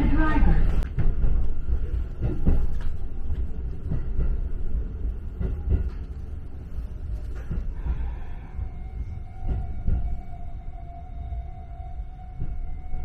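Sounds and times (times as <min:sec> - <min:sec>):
train running gear rumble: 0:00.0 - 0:13.0.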